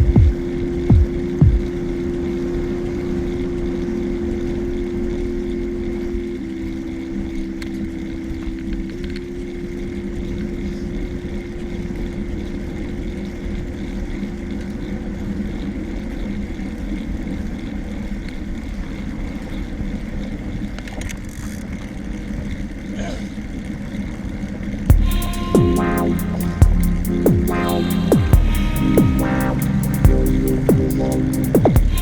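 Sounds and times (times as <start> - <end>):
steady low hum: 0.0 - 20.4, 24.9 - 32.0
wind rumble: 24.9 - 32.0.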